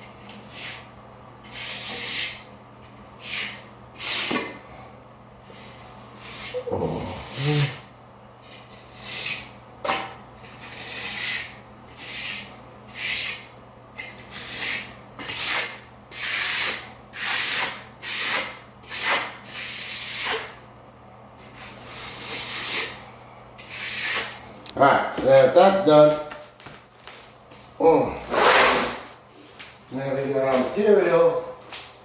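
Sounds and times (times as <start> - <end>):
trowel scraping sand-cement mud: 10.4 - 13.4, 23.6 - 24.4.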